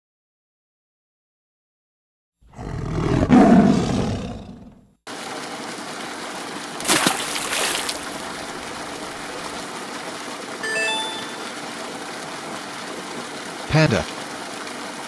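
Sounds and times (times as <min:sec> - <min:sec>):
tiger roaring: 0:02.4 - 0:04.9
water flowing: 0:05.1 - 0:15.0.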